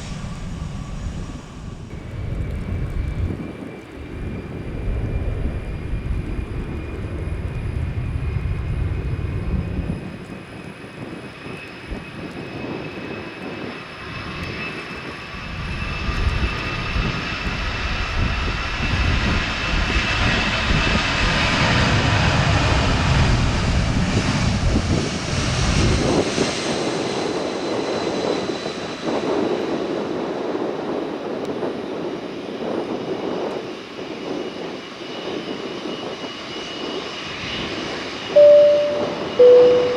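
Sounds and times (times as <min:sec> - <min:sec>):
low rumble: 0:00.0 - 0:10.1
jet engine whine: 0:00.0 - 0:39.9.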